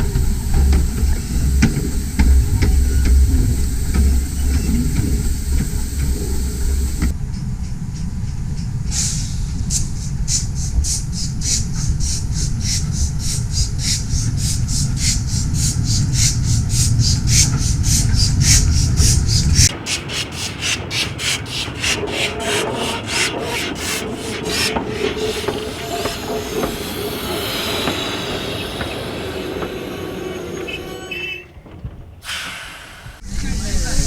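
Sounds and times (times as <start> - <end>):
steam hiss: 0.0 - 7.1, 19.7 - 33.4
steam exhaust beats: 0.0 - 34.0
train rumbling on track: 0.0 - 34.0.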